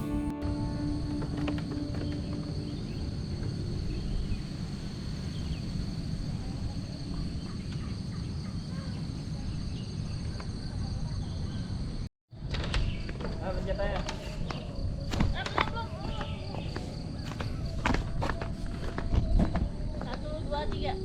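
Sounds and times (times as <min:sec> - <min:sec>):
low rumble: 0:00.0 - 0:07.4
insects droning: 0:00.0 - 0:12.1, 0:12.8 - 0:21.0.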